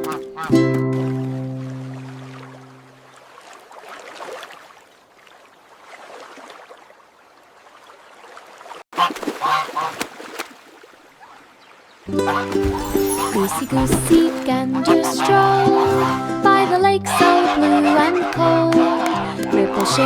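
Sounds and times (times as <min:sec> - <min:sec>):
goose honks: 0:12.2 - 0:13.8, 0:14.7 - 0:20.0.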